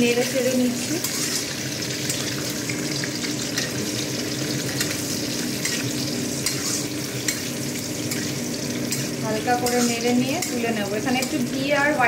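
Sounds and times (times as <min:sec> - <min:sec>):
nuts frying with steady sizzle: 0:00.0 - 0:12.0
spatula scraping and clicking pan: 0:01.0 - 0:02.4, 0:04.7 - 0:11.4.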